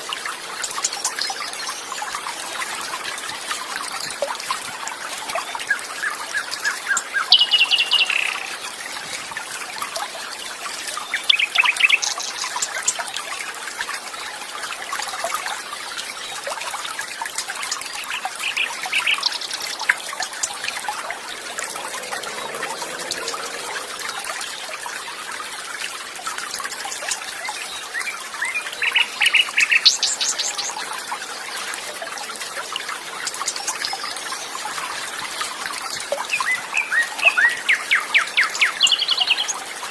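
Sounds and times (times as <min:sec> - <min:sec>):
trickle of flowing water: 0:00.0 - 0:39.9.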